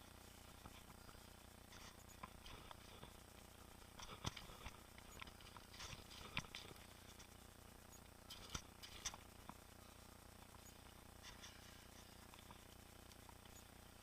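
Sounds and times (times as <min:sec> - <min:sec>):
mountain bike rattling on trail: 0:00.6 - 0:07.5, 0:08.2 - 0:09.7.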